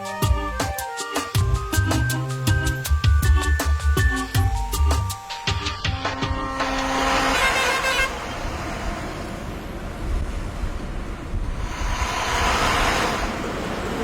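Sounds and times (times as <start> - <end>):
road traffic: 0.0 - 14.0
vehicle horn: 5.6 - 8.5.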